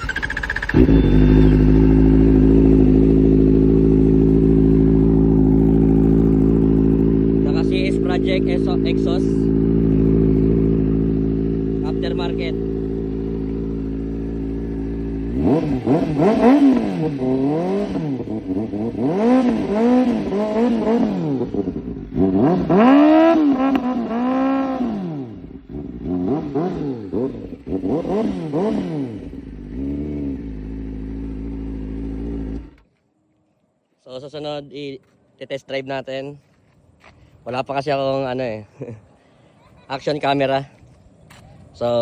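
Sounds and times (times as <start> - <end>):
motorcycle engine idling and revving: 0.0 - 33.0.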